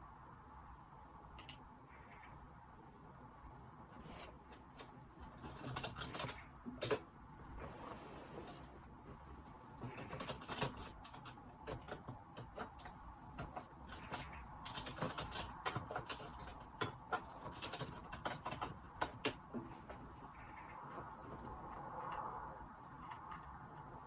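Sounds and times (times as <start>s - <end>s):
computer keyboard typing: 1.4s - 1.6s, 4.2s - 7.2s, 8.4s - 20.5s.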